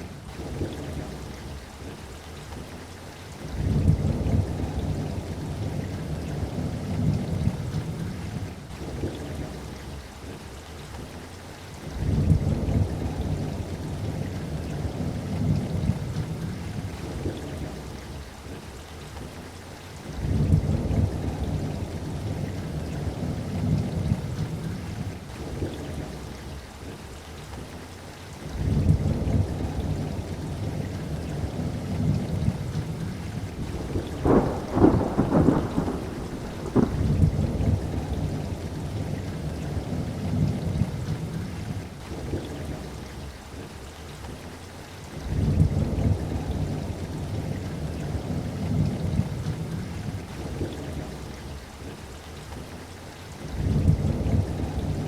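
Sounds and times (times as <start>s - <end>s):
steady rain: 0.0s - 55.0s
deep rumbling thunder: 3.5s - 9.5s, 11.9s - 17.9s, 20.2s - 26.1s, 28.5s - 42.9s, 45.2s - 51.3s, 53.5s - 55.0s
sharp thunder cracks: 33.6s - 38.4s.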